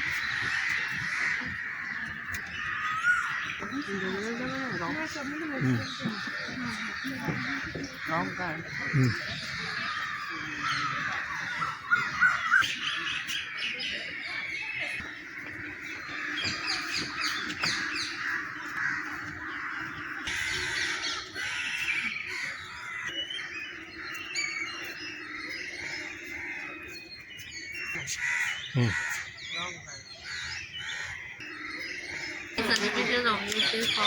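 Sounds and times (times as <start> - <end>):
crows cawing: 0.0 - 12.6, 15.0 - 23.1, 28.2 - 29.4, 30.2 - 34.0
small birds chirping: 0.0 - 34.0.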